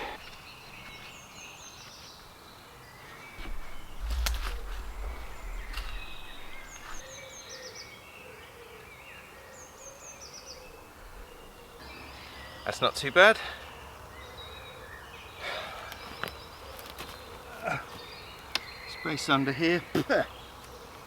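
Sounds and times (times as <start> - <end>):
woodland birds chirping: 0.0 - 21.0
low rumble: 3.4 - 7.1, 10.8 - 11.8.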